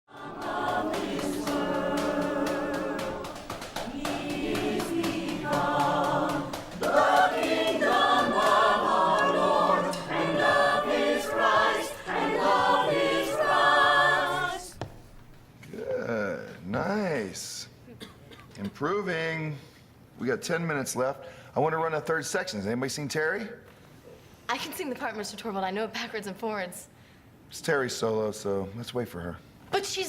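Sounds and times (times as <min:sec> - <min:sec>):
choir singing in parts: 0:00.1 - 0:14.8.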